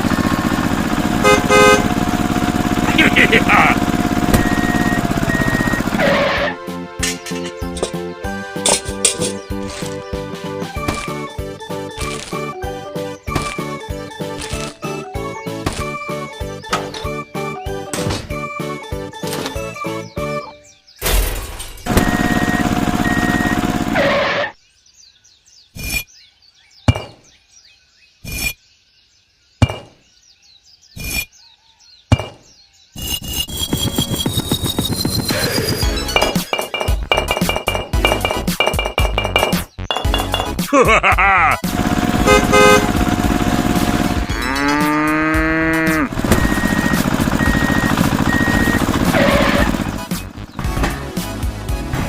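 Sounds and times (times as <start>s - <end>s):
faint birdsong: 7.0s - 41.6s, 44.1s - 51.1s
sharp knocks: 29.6s - 30.0s
music with rising notes: 33.2s - 40.7s, 41.4s - 52.0s
cow mooing: 44.2s - 46.2s.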